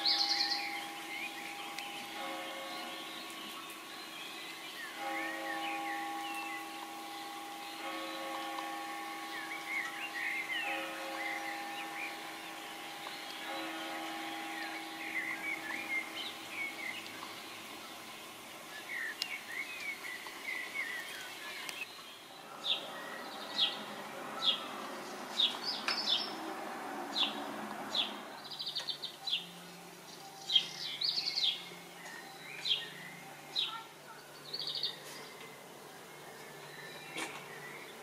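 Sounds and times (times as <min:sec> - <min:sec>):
bird twittering: 0:00.0 - 0:18.1
bird singing high sliding notes: 0:00.0 - 0:35.4.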